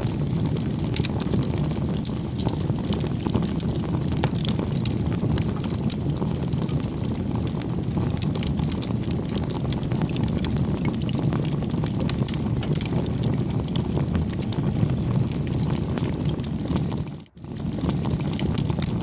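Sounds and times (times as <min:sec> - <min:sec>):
wood fire crackling and roaring: 0:00.0 - 0:19.0.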